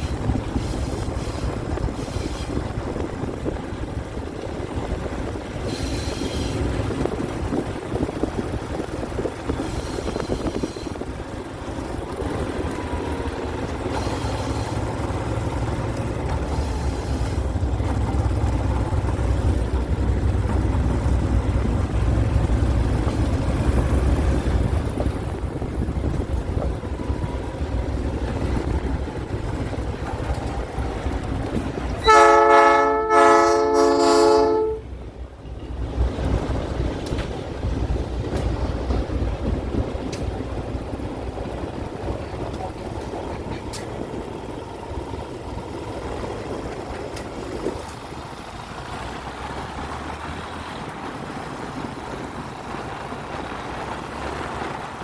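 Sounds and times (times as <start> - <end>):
locomotive air horn pulses: 0.0 - 2.7, 5.6 - 6.8, 9.5 - 11.2, 13.8 - 17.6, 31.9 - 34.9
diesel train rumbling: 0.0 - 55.0.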